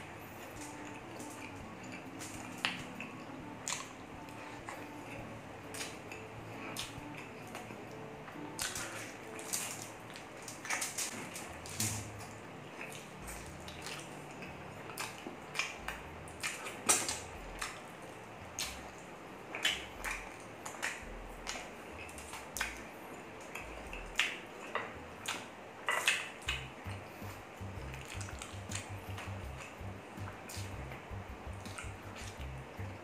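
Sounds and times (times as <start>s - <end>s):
person chewing with lip smacks: 23.5s - 29.7s.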